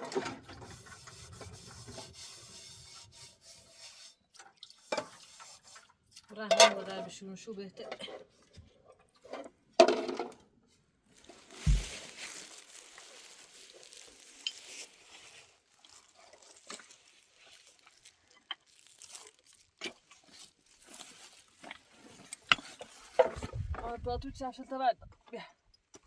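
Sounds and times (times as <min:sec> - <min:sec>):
faint crinkling: 0:11.1 - 0:24.0
sharp knock: 0:11.6 - 0:12.0
low thud: 0:11.6 - 0:12.2.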